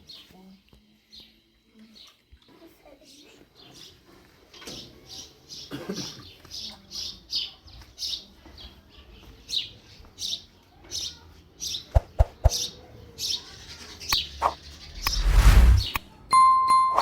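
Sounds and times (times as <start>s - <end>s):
brief rush of noise: 15.0s - 16.0s
steady beep: 16.3s - 17.0s.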